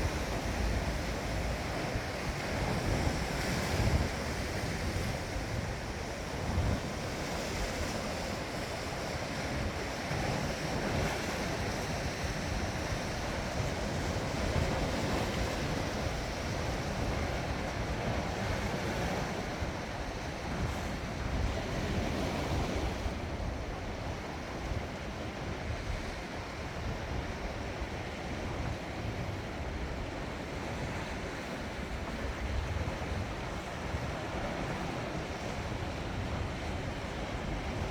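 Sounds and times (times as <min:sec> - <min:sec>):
sea waves washing in: 0:00.0 - 0:08.5.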